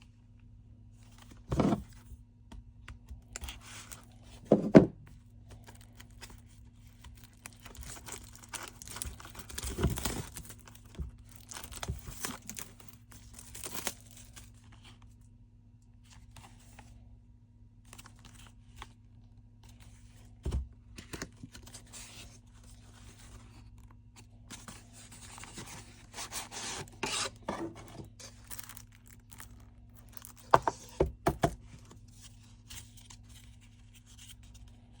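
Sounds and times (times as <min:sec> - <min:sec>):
faint steady hum: 0:00.0 - 0:35.0
packaging tearing and crinkling: 0:06.8 - 0:14.5, 0:28.1 - 0:30.6.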